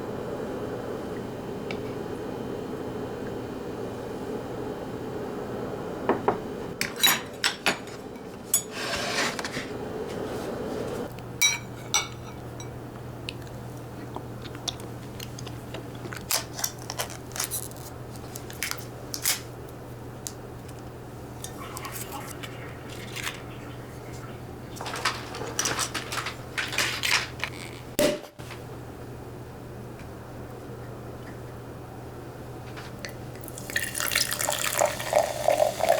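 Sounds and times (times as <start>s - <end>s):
steady low hum: 0.0s - 35.1s
dishes and utensils clinking: 6.8s - 9.7s, 11.4s - 12.8s, 21.4s - 27.6s.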